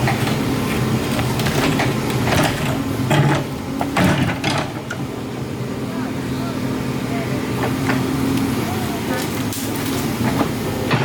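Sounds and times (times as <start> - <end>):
sharp knocks and clattering scrapes: 0.0 - 5.0.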